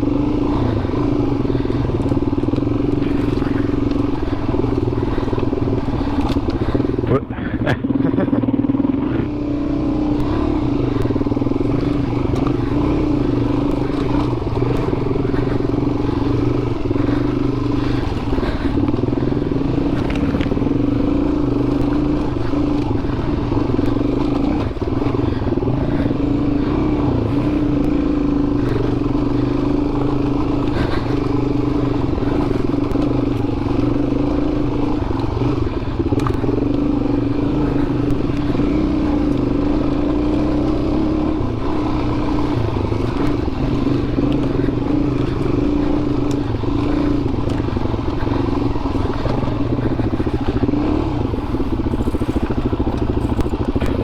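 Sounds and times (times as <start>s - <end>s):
knocks and rattles on rough ground: 0.0s - 8.4s, 10.1s - 54.0s
motorcycle engine running: 0.0s - 54.0s.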